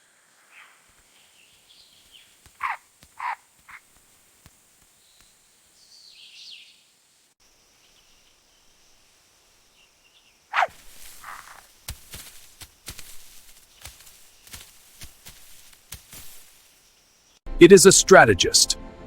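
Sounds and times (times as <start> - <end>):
low hiss: 0.0 - 17.4
sharp animal calls: 2.1 - 4.0, 10.4 - 14.7
faint high chirping: 7.7 - 11.7.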